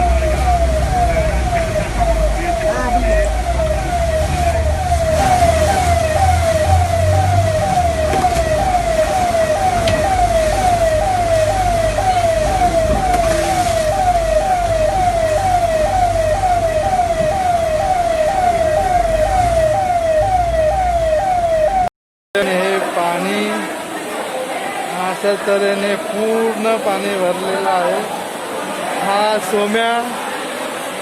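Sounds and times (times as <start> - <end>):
electronic siren falling tone: 0.0 - 21.9.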